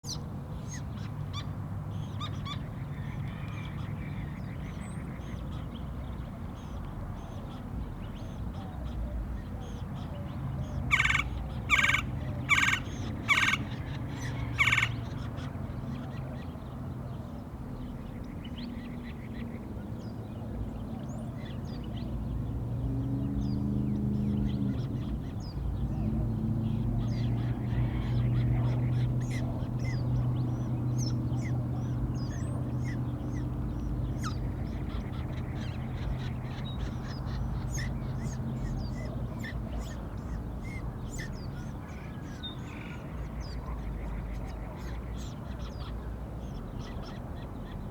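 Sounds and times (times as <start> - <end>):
woodpecker calling: 10.9 - 15.3.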